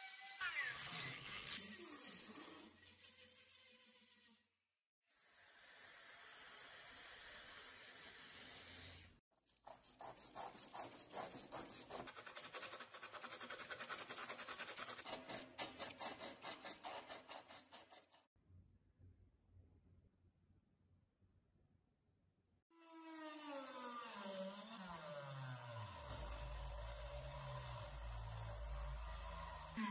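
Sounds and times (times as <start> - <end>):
sanding strokes on metal: 0.4 - 4.5, 5.8 - 18.2, 24.0 - 29.9.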